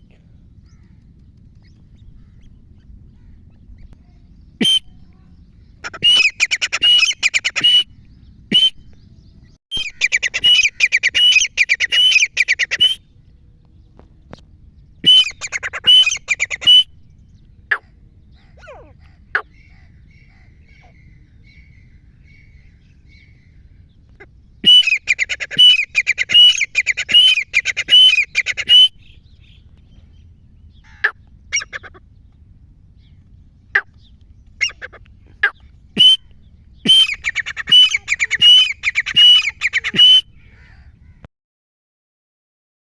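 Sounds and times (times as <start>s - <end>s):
francolin calling: 9.8s - 13.0s, 15.0s - 16.9s, 24.6s - 29.6s, 33.8s - 40.9s.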